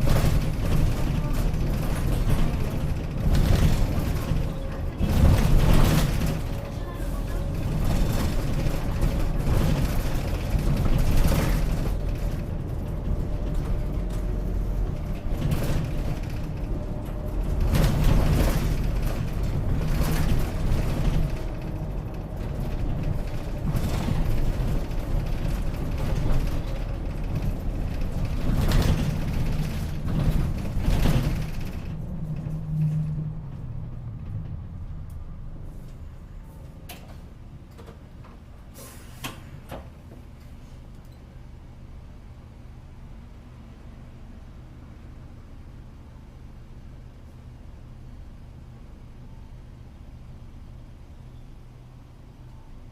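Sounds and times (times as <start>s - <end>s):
sharp knocks and rattles: 0.0s - 6.7s, 7.4s - 34.6s
bus engine and road rumble: 0.0s - 52.9s.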